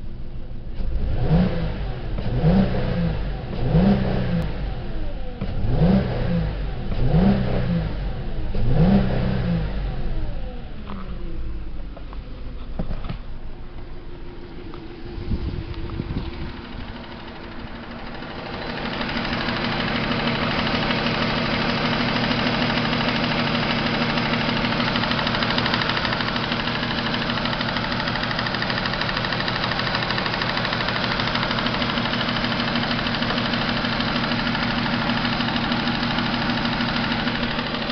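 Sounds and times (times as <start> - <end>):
car engine running: 0.0 - 37.9.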